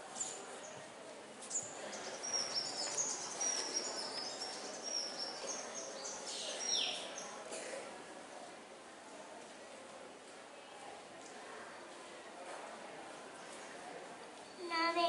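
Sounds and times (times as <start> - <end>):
birds chirping: 1.5 - 7.2.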